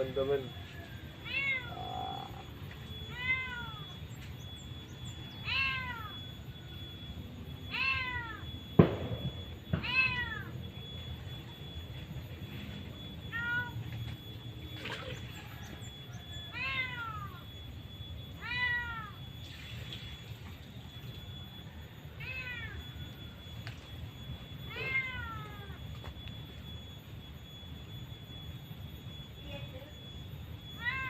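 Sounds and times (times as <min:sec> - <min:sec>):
cat meowing: 0:01.2 - 0:02.4, 0:03.1 - 0:04.0, 0:05.4 - 0:06.2, 0:07.7 - 0:08.4, 0:09.8 - 0:10.5, 0:13.3 - 0:13.8, 0:16.5 - 0:17.4, 0:18.4 - 0:19.2, 0:22.2 - 0:22.8, 0:24.7 - 0:25.8, 0:30.8 - 0:31.0.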